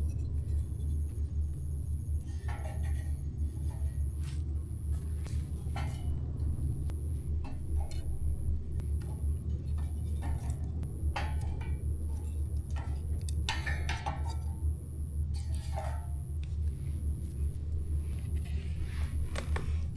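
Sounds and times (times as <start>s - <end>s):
steady low rumble: 0.0s - 19.9s.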